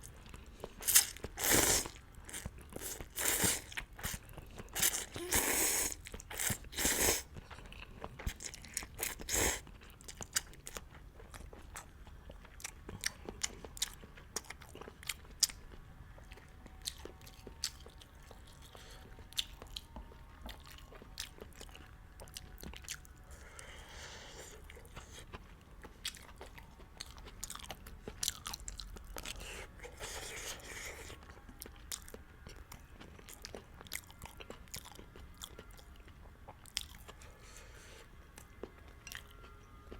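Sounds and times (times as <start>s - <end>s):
noodle slurping: 0.8s - 4.2s, 4.8s - 7.2s
wet chewing and mouth clicks: 24.6s - 37.2s.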